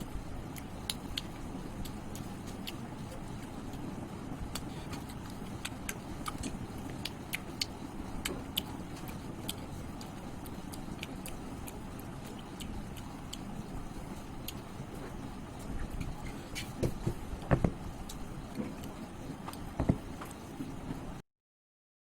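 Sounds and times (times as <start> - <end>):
person chewing food: 4.4 - 20.4.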